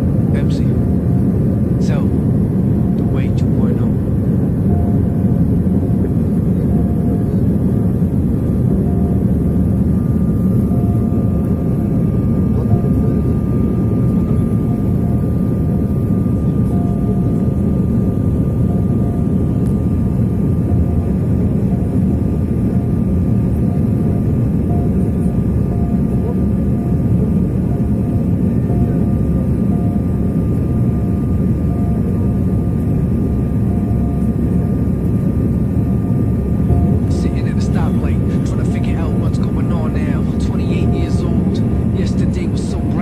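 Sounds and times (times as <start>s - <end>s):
faint whine: 0.0s - 43.0s
jet engines rumbling: 0.0s - 43.0s.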